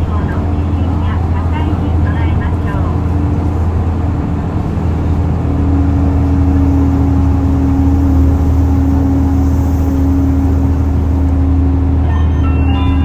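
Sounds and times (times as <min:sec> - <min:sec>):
bus diesel engine accelerating: 0:00.0 - 0:13.0.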